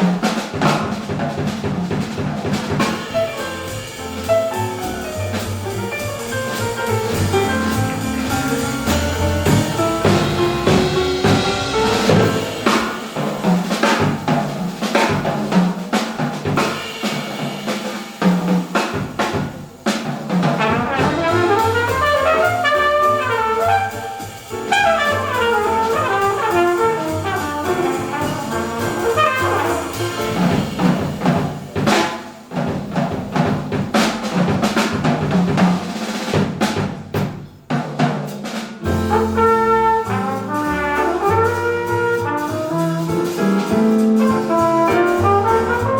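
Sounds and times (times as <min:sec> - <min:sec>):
drum kit: 0:00.0 - 0:45.9
piano: 0:00.0 - 0:45.9
double bass: 0:02.0 - 0:13.4, 0:20.6 - 0:31.7, 0:38.8 - 0:45.9
flugelhorn: 0:02.8 - 0:13.0, 0:20.6 - 0:30.9, 0:38.8 - 0:45.9.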